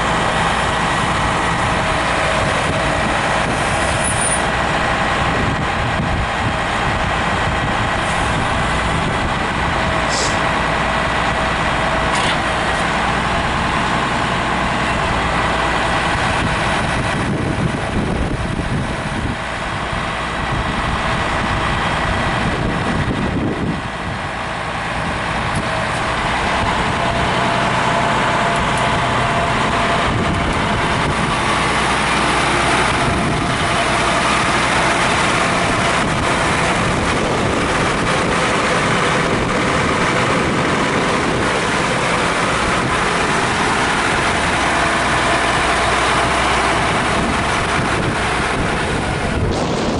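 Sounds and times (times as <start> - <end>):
steady whine: 0.0 - 49.9
truck engine running: 0.0 - 49.9.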